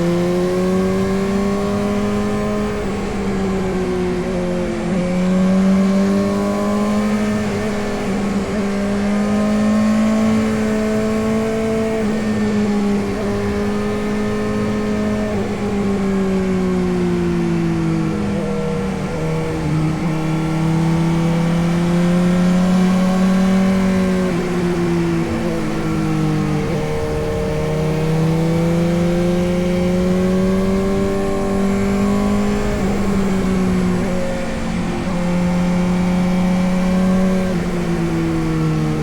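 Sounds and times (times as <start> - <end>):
motorcycle engine running: 18.0 - 39.0.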